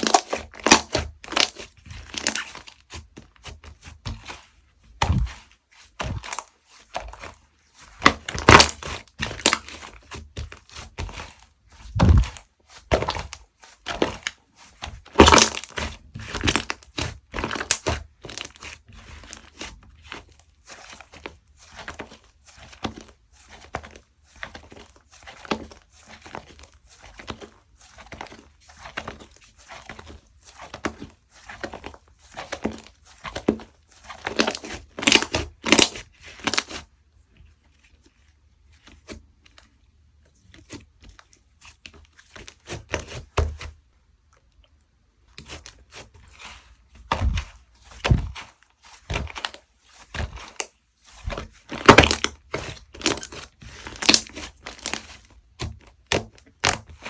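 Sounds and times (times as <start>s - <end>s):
slime squished by hand: 0.0s - 20.4s, 24.6s - 36.8s, 45.3s - 57.0s
dull thumps: 11.9s - 12.4s, 47.1s - 48.4s.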